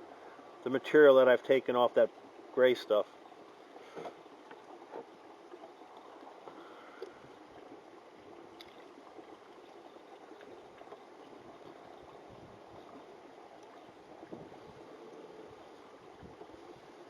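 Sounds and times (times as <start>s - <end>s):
light ticks: 8.6s - 8.8s.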